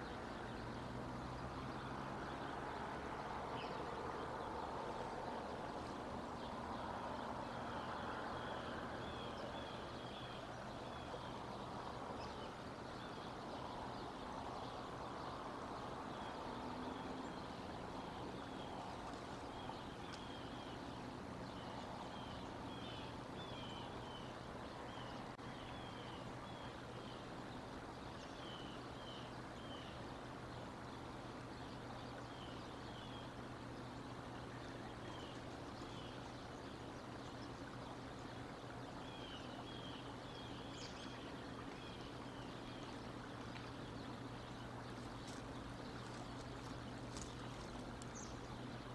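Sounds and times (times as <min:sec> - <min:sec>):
low outdoor rush: 0:00.0 - 0:48.9
small birds chirping: 0:00.0 - 0:48.9.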